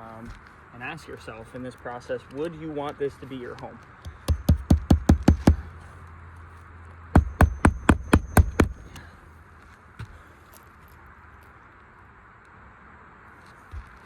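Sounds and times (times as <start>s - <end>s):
hammer driving nails: 4.0s - 5.7s, 7.2s - 9.1s.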